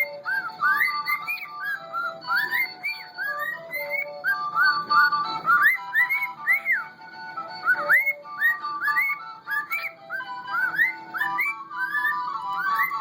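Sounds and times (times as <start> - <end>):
cockatiel whistling: 0.0 - 13.0
tin whistle music: 0.0 - 13.0.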